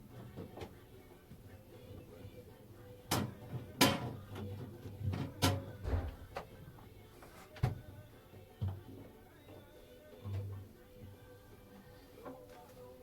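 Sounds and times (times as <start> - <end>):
fridge door knocks and clunks: 5.8 - 6.4.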